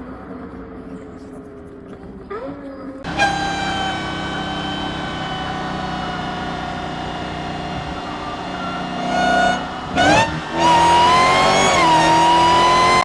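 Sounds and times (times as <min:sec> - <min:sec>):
car engine at high revs: 0:03.0 - 0:13.0.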